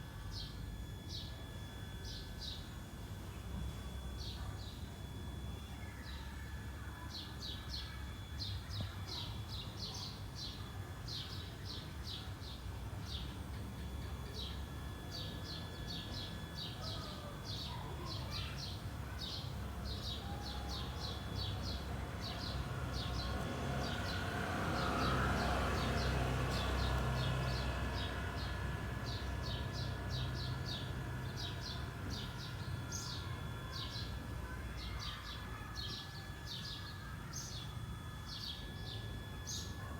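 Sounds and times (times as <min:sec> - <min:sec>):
birds chirping: 0:07.0 - 0:39.9
low outdoor rumble: 0:20.6 - 0:34.4.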